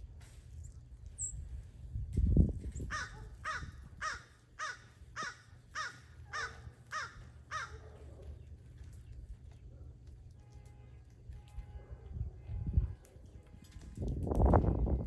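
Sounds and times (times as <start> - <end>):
bird calls: 2.8 - 9.7.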